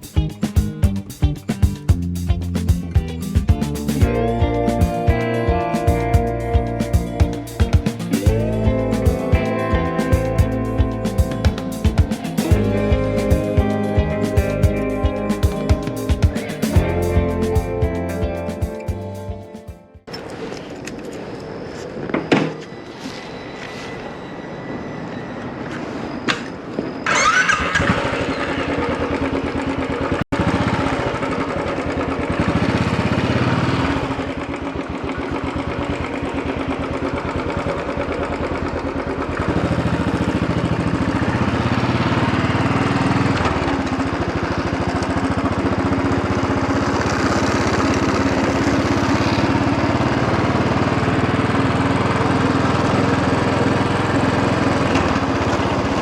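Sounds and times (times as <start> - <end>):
motorcycle engine starting and running: 0.0 - 20.0, 27.1 - 56.0.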